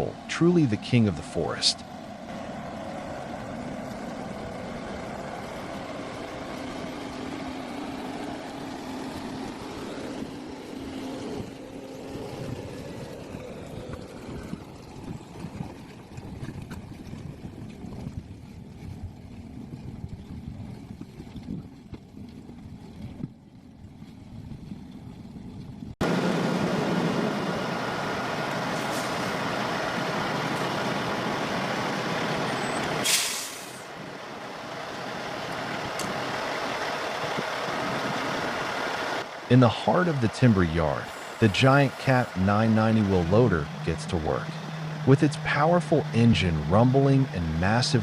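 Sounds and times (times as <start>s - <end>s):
heavy diesel machinery running: 0.0s - 15.4s, 26.0s - 48.0s
engine running steadily: 0.0s - 48.0s
air brake hiss: 28.8s - 29.3s, 33.0s - 33.9s.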